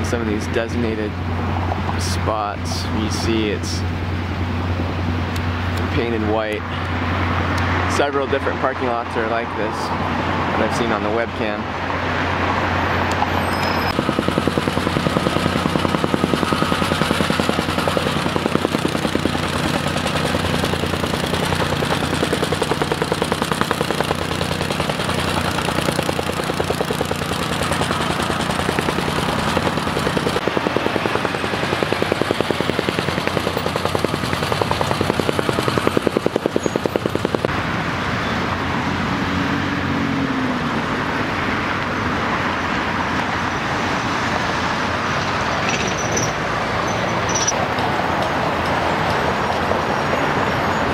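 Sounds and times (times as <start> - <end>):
street traffic rumble: 0.0 - 50.9
machine pulsing hum: 13.9 - 37.5.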